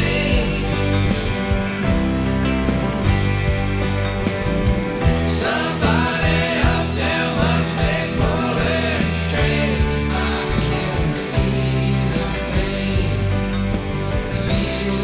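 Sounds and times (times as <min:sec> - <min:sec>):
person singing: 0:00.0 - 0:02.0, 0:05.3 - 0:15.0
band with guitar and beat: 0:00.0 - 0:15.0.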